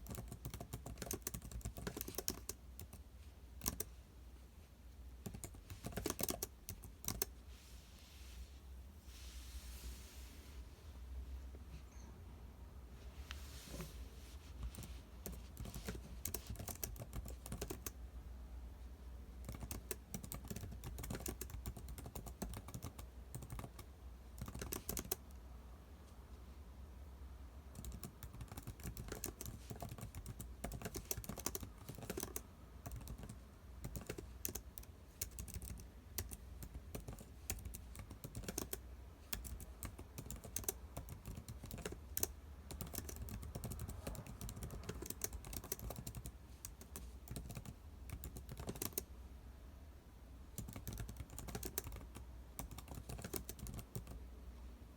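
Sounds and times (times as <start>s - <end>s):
computer keyboard typing: 0.0s - 3.0s, 3.6s - 4.0s, 5.2s - 7.4s, 14.6s - 18.0s, 19.4s - 25.3s, 27.7s - 49.1s, 50.6s - 54.2s.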